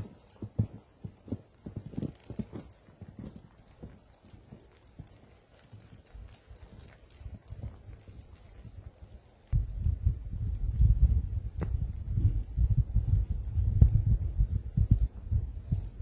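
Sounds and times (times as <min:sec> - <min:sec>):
soft footsteps: 0:00.0 - 0:08.6, 0:10.8 - 0:16.0.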